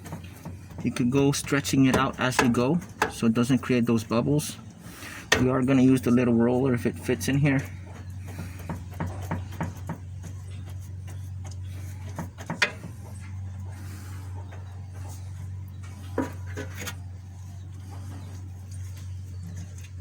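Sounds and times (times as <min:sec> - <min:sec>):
steady low hum: 0:00.0 - 0:20.0
clicks and taps of brushing: 0:06.8 - 0:13.6.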